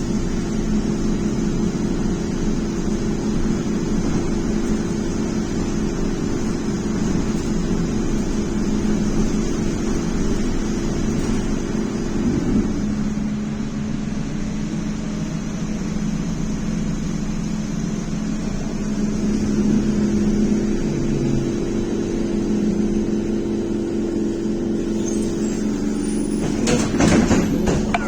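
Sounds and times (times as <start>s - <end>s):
road and body noise: 25.0s - 28.0s.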